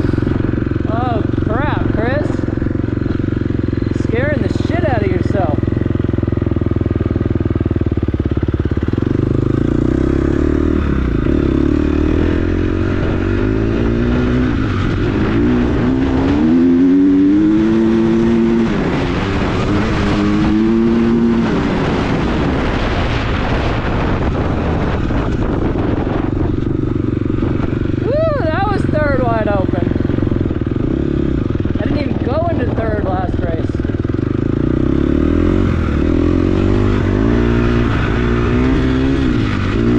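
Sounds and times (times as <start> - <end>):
dirt bike engine at full throttle: 0.0 - 39.9.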